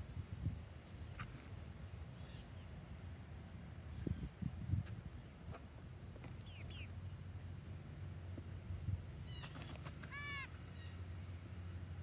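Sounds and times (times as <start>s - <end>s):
birds chirping: 6.2s - 7.2s.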